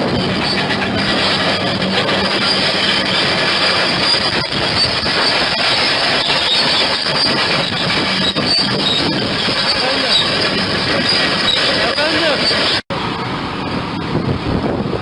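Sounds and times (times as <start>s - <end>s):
steel tracks clanking and squealing: 0.0s - 14.9s
bulldozer engine running: 0.0s - 15.0s.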